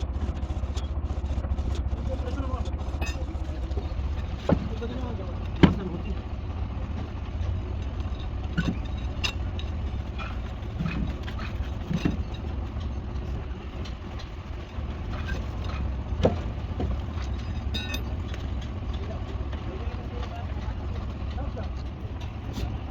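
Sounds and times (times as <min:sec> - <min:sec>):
low engine rumble: 0:00.0 - 0:22.9
short knocks and clanks: 0:01.8 - 0:22.9.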